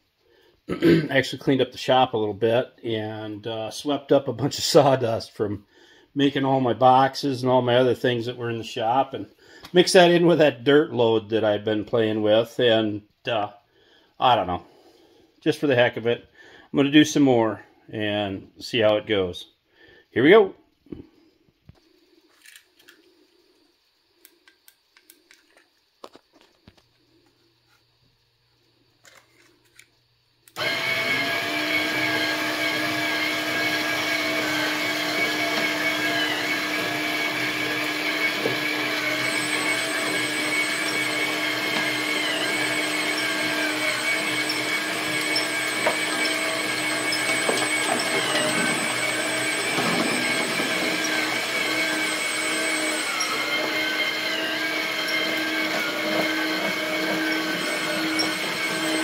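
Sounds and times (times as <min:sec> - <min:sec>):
small electric motor whining: 0:30.5 - 0:59.0.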